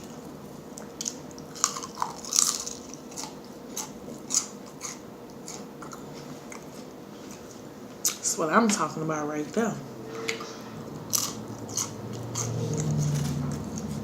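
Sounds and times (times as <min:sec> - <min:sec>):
crisp chewing crunches: 0:00.0 - 0:08.2, 0:11.1 - 0:14.0
faint steady hum: 0:00.0 - 0:14.0.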